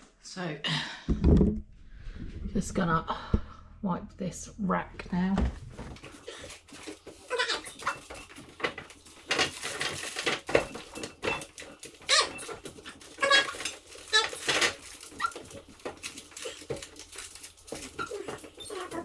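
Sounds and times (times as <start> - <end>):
plastic fridge rack clattering: 5.4 - 19.0
short high-pitched squeaks: 10.7 - 15.6.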